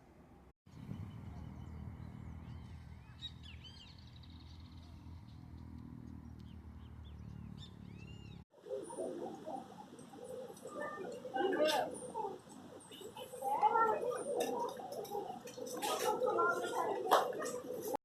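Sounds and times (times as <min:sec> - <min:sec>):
small birds chirping: 0:00.7 - 0:18.0.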